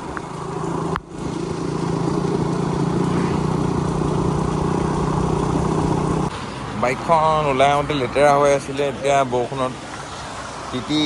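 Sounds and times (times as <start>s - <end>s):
motorcycle engine running: 0.0s - 6.3s
steady rushing noise: 0.0s - 11.0s.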